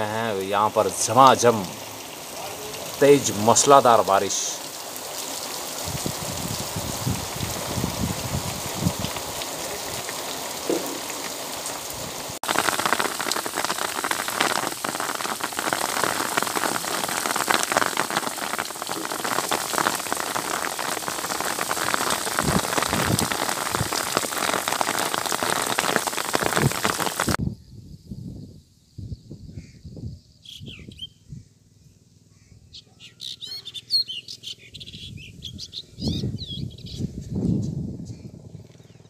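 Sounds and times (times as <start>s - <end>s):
heavy rain downpour: 0.0s - 27.4s.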